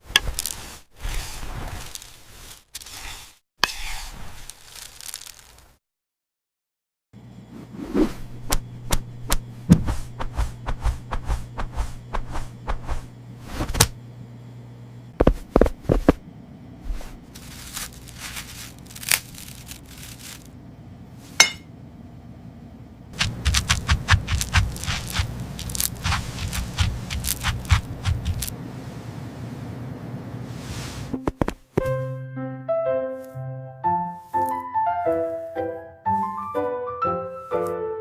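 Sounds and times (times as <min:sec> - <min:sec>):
steady low hum: 0:07.2 - 0:31.2.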